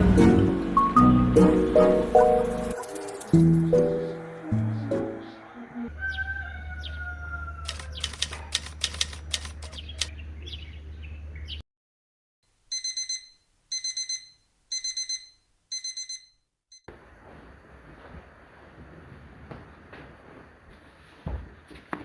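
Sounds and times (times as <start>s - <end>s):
rapid clicks: 7.7s - 10.1s
alarm clock beeping: 12.7s - 16.9s.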